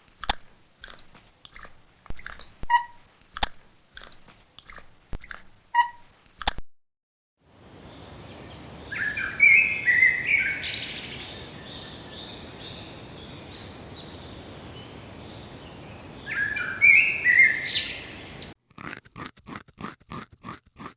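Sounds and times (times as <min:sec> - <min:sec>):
songbirds chirping and singing: 0:07.6 - 0:18.6
short crunching sounds: 0:18.5 - 0:20.9.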